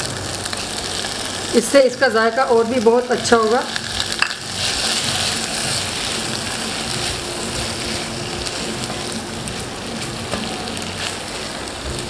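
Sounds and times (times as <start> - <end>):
pasta sizzling in a pan: 0.0 - 12.0
spatula stirring: 3.7 - 12.0.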